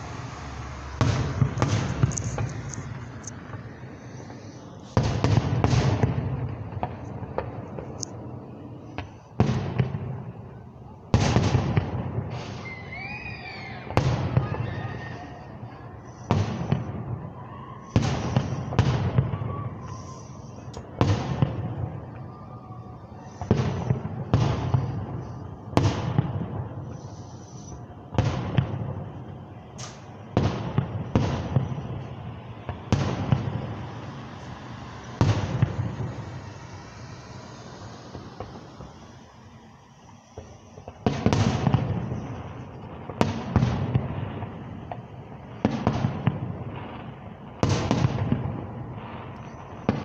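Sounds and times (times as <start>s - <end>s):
firework shells bursting: 0.0s - 8.2s, 23.2s - 46.4s
firework whistling glide: 0.0s - 9.4s, 11.6s - 50.0s
rolling echo: 0.0s - 50.0s.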